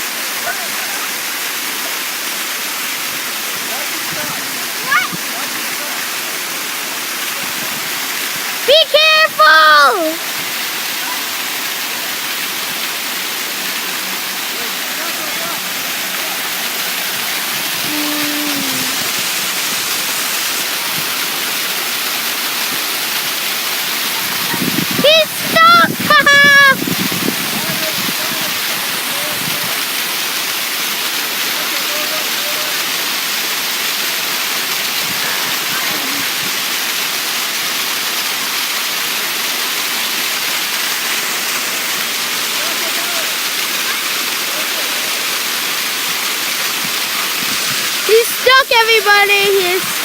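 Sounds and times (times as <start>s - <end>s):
waterfall roaring: 0.0s - 50.0s
person calling: 8.7s - 10.2s, 17.8s - 19.2s, 25.0s - 26.8s.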